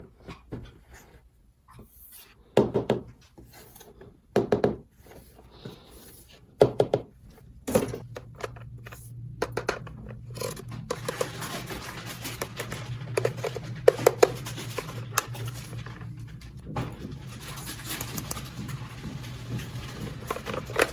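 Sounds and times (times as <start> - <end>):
steady low hum: 4.8 - 20.9.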